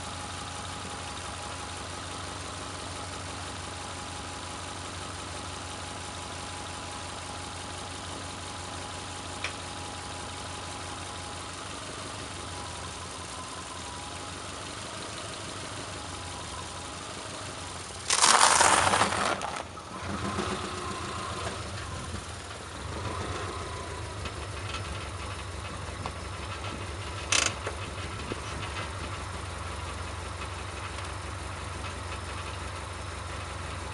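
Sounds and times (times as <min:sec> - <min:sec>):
car engine idling: 0:00.0 - 0:33.9
rough crackling: 0:17.9 - 0:20.4
tyre crushing dried noodles: 0:18.1 - 0:19.7.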